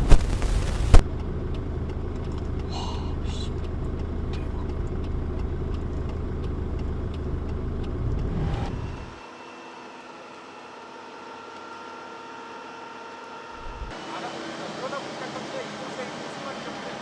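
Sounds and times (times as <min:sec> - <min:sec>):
low engine rumble: 0:00.0 - 0:09.2, 0:13.5 - 0:17.0.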